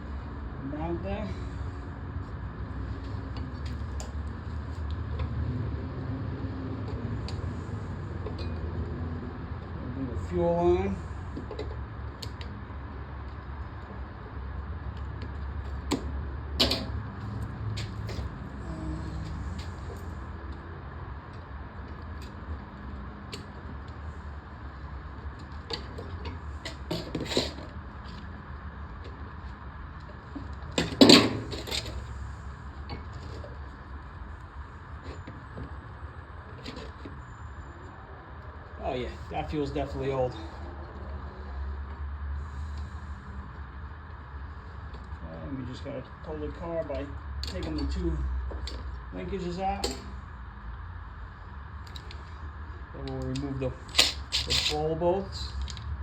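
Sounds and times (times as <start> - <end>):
steady low hum: 0.0 - 56.0
small clicks of tools and parts: 51.8 - 52.2, 55.5 - 55.9.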